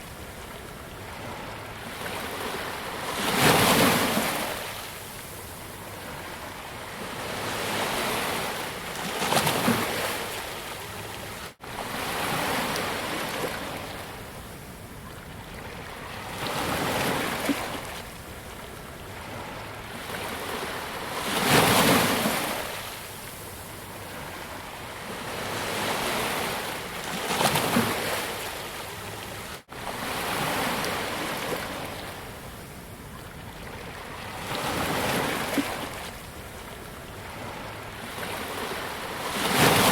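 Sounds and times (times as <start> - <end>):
sea waves breaking on beach: 19.1 - 32.5, 37.2 - 39.9.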